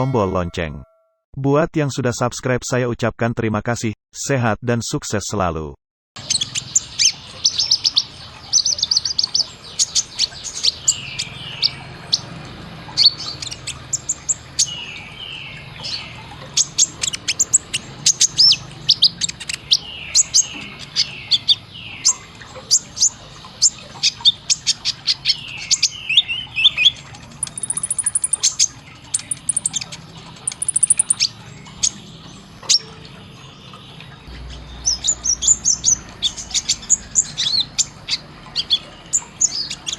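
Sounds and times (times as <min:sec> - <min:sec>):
sunbird singing high chirps: 0:25.6 - 0:32.0.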